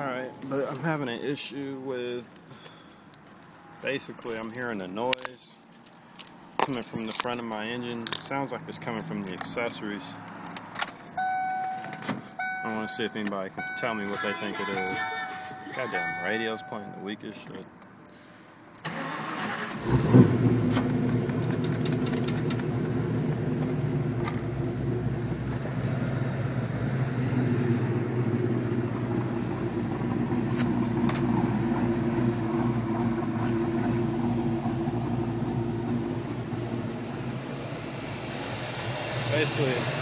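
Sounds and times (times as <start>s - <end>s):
car engine starting and idling: 7.6s - 17.0s, 18.8s - 40.0s.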